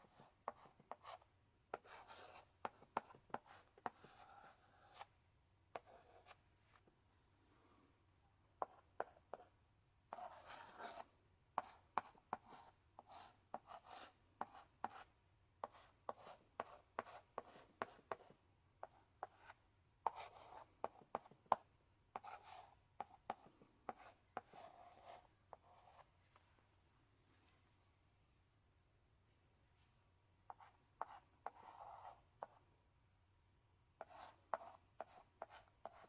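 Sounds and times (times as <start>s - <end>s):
chalk scratching on blackboard: 0.0s - 5.1s, 5.8s - 6.4s, 10.1s - 21.6s, 22.2s - 26.1s, 30.5s - 32.6s, 34.0s - 36.0s
chalk tapping on blackboard: 34.0s - 36.0s.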